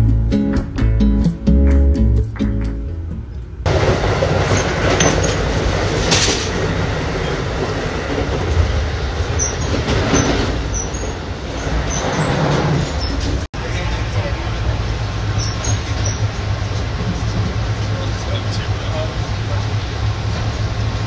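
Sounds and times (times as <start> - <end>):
guitar music: 0.0 - 3.7
train rumbling on rails: 3.4 - 21.0
high wheel squeaks: 3.7 - 21.0.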